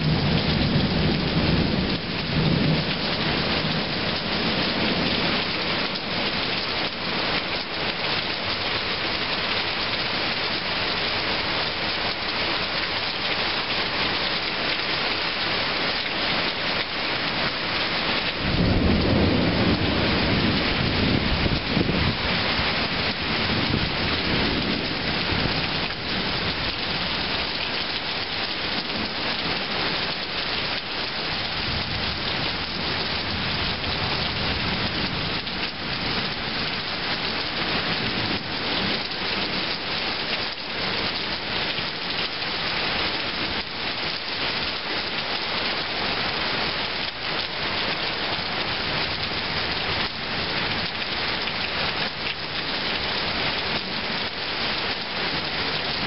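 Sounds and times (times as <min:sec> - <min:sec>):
heavy rain pouring: 0:00.0 - 0:56.0
low thunder rumble: 0:18.3 - 0:26.5.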